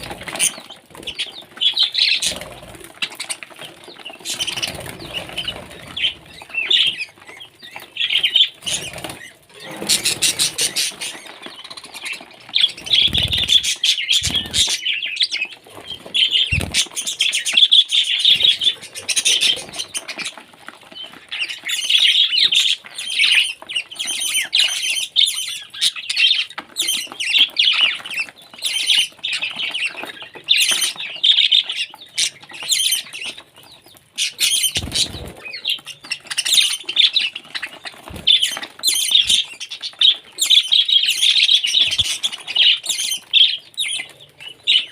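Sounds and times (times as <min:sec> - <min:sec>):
parrot chirping and squawking: 0:04.2 - 0:20.4, 0:34.2 - 0:44.9.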